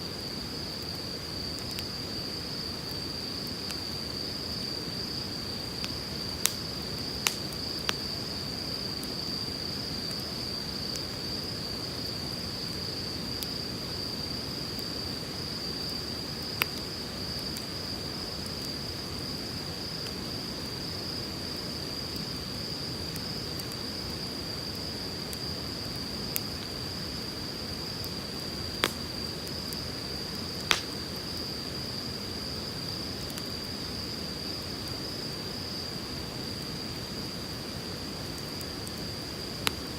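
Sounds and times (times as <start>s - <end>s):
campfire crackling: 0.1s - 39.9s
firewood popping: 5.8s - 8.0s, 28.0s - 29.8s, 30.6s - 31.2s.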